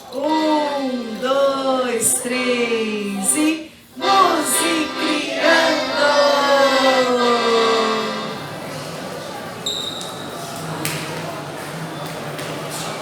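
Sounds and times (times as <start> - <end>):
voices singing a melody: 0.2 - 8.7.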